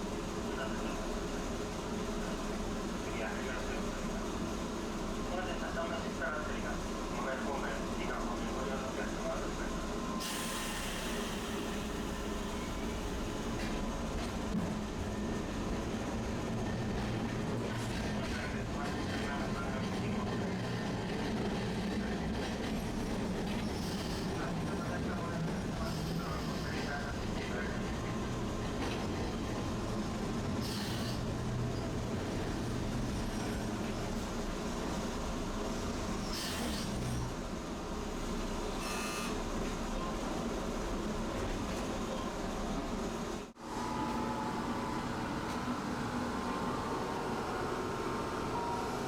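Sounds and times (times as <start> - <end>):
rail noise: 0.0 - 49.0
streetcar rumble: 0.0 - 49.0
tram humming: 0.0 - 49.0
streetcar hiss: 9.7 - 13.6, 23.6 - 24.6, 30.0 - 32.9, 33.6 - 37.3.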